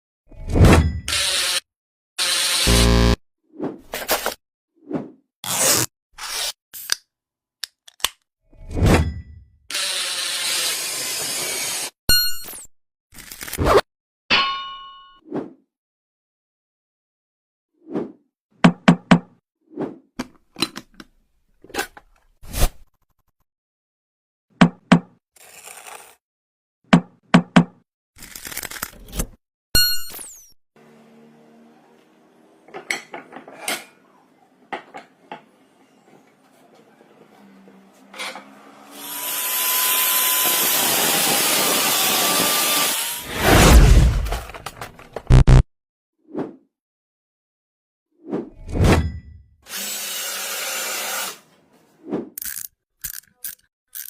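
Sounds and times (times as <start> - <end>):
power tool grinding: 2.2 - 3.2.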